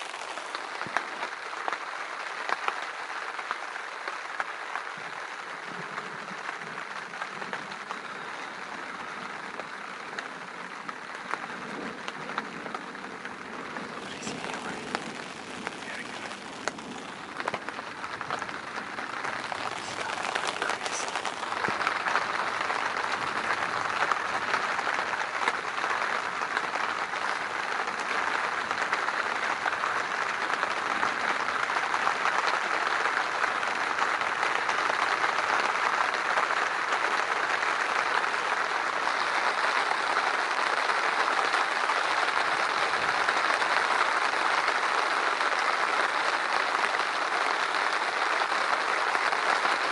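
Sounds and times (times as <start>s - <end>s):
heavy rain pouring: 0.0s - 49.9s.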